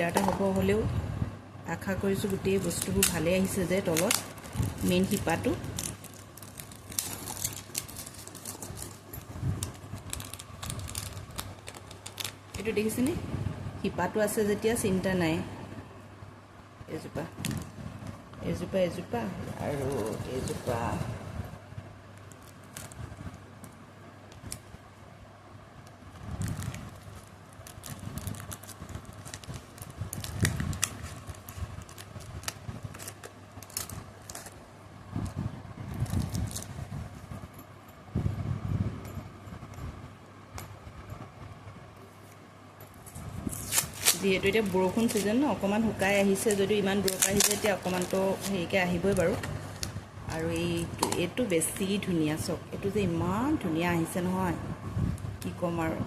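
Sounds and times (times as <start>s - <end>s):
steady low hum: 0.0s - 56.0s
hands handling plant packing: 2.2s - 13.1s, 19.5s - 21.0s, 26.4s - 37.2s, 42.9s - 51.5s.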